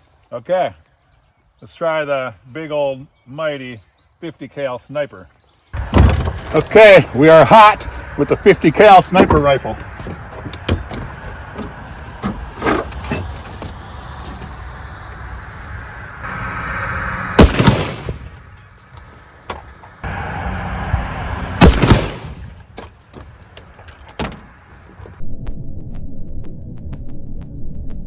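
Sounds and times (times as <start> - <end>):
rifle shots with echo: 17.4 - 18.5, 21.6 - 22.4.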